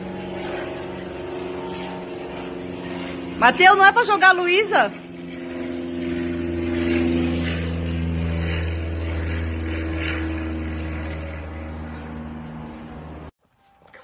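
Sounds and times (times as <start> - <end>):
mechanical drone with low hum: 0.0 - 4.0, 4.9 - 13.3.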